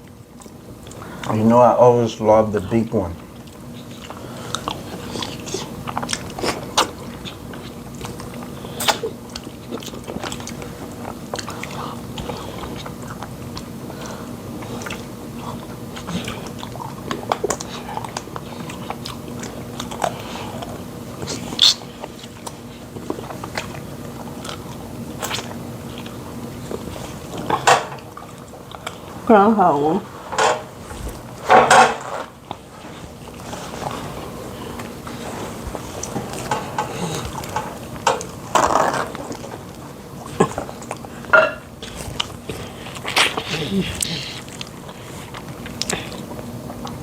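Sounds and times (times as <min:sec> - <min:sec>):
wet chewing: 0:00.0 - 0:01.5, 0:03.2 - 0:47.0
lip smacks: 0:03.4 - 0:29.0, 0:40.2 - 0:47.0
mouth smacks and clicks: 0:21.2 - 0:22.5.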